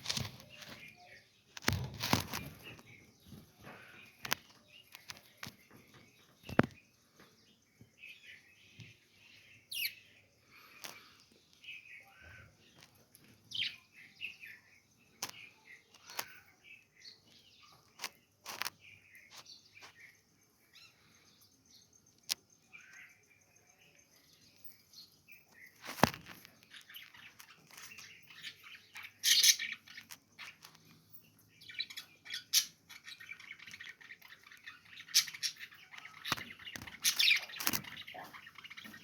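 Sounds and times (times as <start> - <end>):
budgerigars chirping: 26.9 - 30.6, 31.6 - 39.0.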